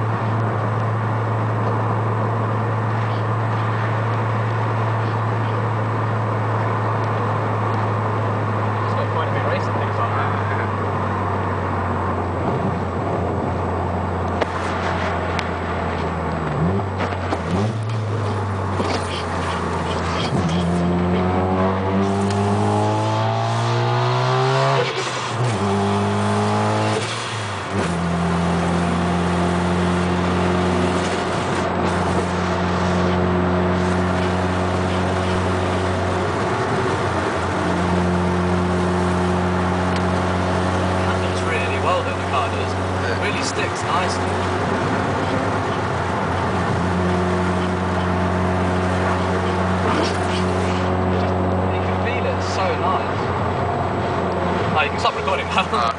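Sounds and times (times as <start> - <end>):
rotary car engine accelerating: 0.0 - 55.9.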